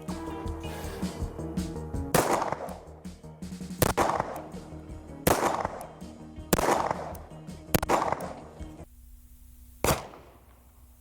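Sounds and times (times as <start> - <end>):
bullets striking dirt: 2.2 - 3.0, 3.8 - 8.8, 9.8 - 10.6.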